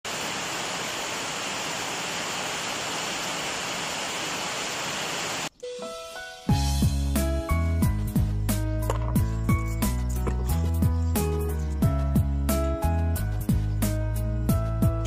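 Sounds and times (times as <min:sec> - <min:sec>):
steady rain hiss: 0:00.1 - 0:05.5.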